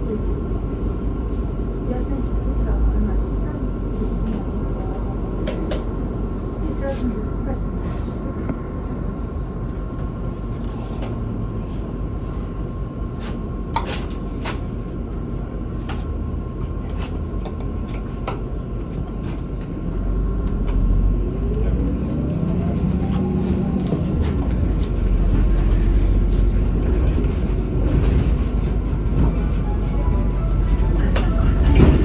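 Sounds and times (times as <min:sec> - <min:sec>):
bus engine and road rumble: 0:00.0 - 0:32.0.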